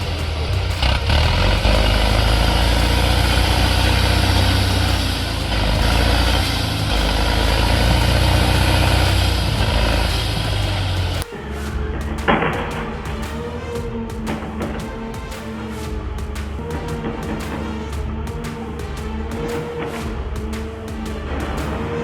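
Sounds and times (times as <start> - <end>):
heavy vehicle engine humming: 0.0 - 14.0.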